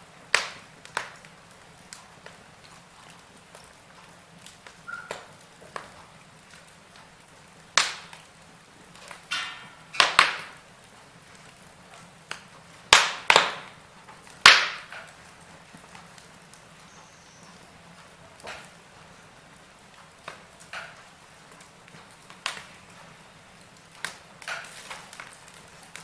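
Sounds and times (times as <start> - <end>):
quiet background hiss: 0.0 - 26.0
wood fire crackling: 0.0 - 26.0.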